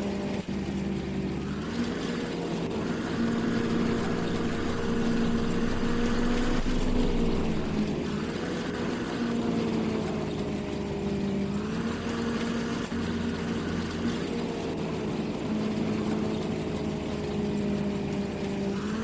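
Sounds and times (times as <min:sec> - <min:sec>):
combine harvester engine drone: 0:00.0 - 0:19.0
machinery whirring: 0:01.4 - 0:09.0.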